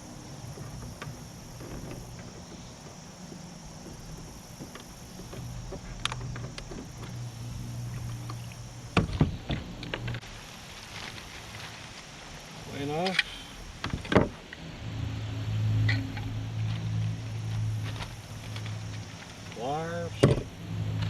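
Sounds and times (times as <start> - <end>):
steady low rumble: 13.4 - 21.0.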